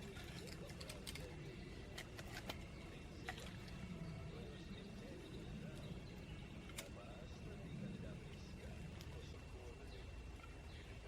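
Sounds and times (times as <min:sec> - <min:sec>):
twigs snapping: 0:06.6 - 0:07.0.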